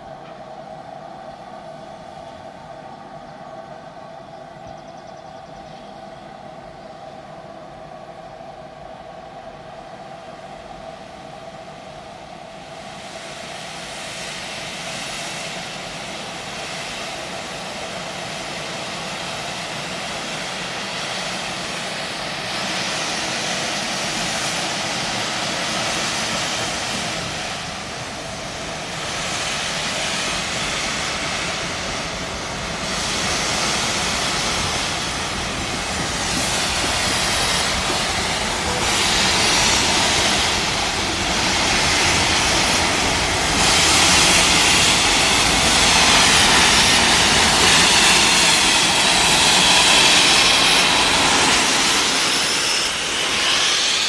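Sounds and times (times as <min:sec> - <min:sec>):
steam train approaching: 0:00.0 - 0:54.0
rushing steam surges: 0:05.5 - 0:54.0.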